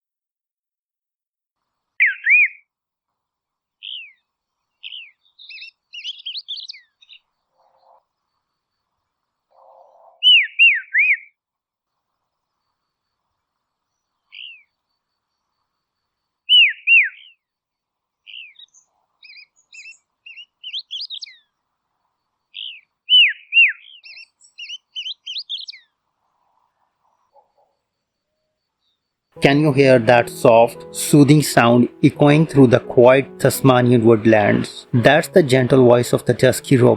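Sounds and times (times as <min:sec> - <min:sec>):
robin singing whistles: 0:04.9 - 0:07.2, 0:16.5 - 0:17.4, 0:18.3 - 0:21.4, 0:22.6 - 0:25.8.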